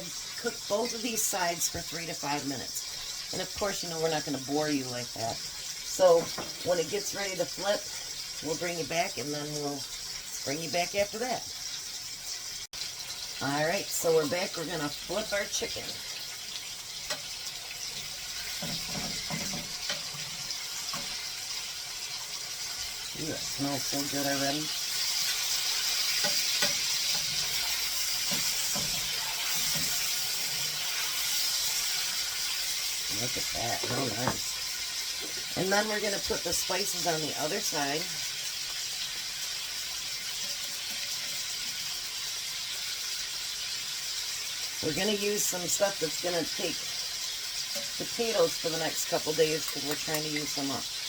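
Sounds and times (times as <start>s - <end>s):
chicken sizzling in oil: 0.0s - 51.0s.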